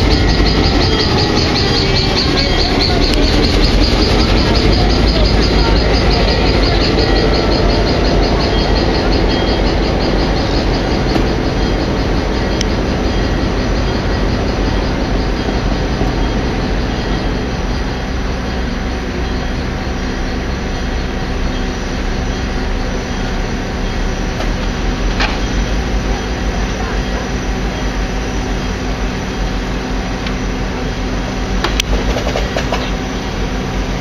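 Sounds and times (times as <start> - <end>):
high wheel squeak: 0.0 - 31.2
train wheels rumbling on rails: 0.0 - 34.0.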